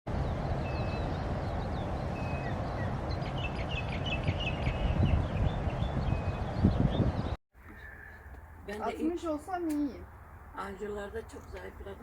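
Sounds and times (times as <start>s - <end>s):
small birds chirping and whistling: 0.6s - 8.3s.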